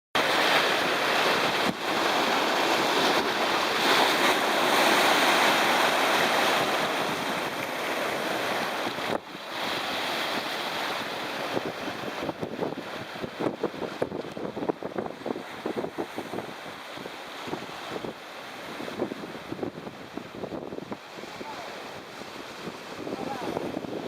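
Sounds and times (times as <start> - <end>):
surf breaking on shore: 0.2 - 24.0
wind on microphone: 0.5 - 24.0.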